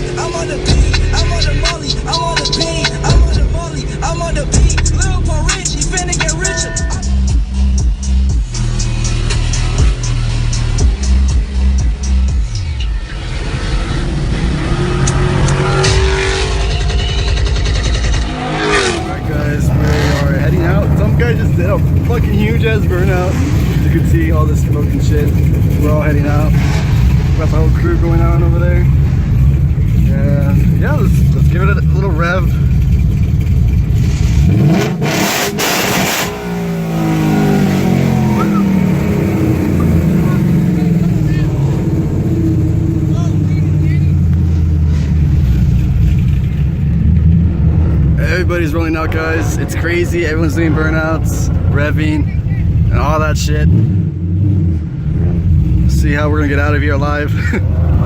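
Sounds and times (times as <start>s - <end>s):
car engine revving: 0.0s - 58.0s
tyres spinning: 15.4s - 34.8s.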